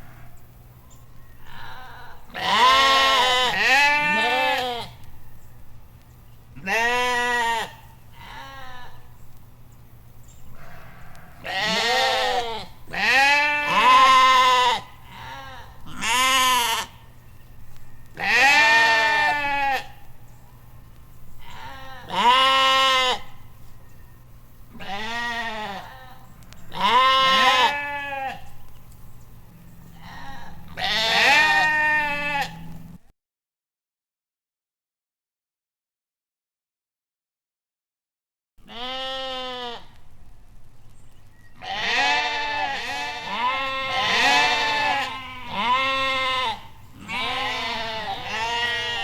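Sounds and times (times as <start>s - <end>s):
farm animal bleating: 1.3s - 5.1s, 6.5s - 9.2s, 10.5s - 17.2s, 17.8s - 20.2s, 21.4s - 23.6s, 24.7s - 28.7s, 29.9s - 33.0s, 38.6s - 40.0s, 41.6s - 49.0s.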